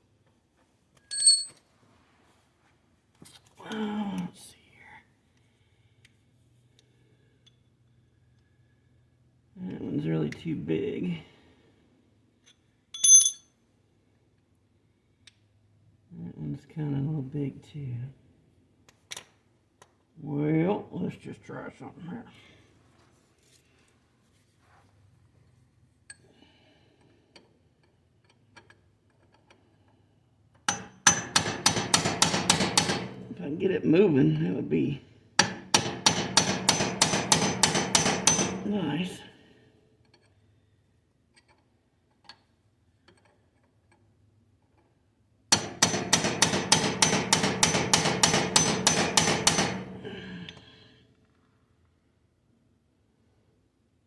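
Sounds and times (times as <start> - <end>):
hammer striking punch: 30.7 - 33.4, 35.4 - 38.7, 45.5 - 50.3.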